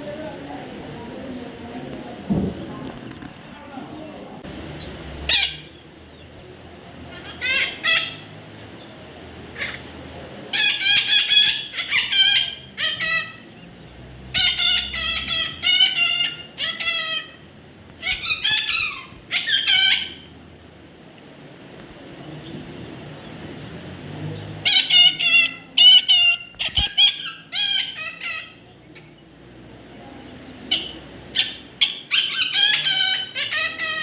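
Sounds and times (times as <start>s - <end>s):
parrot calling: 4.9s - 5.8s, 7.1s - 8.4s, 9.5s - 13.6s, 14.3s - 20.3s, 24.6s - 29.2s, 30.6s - 34.0s.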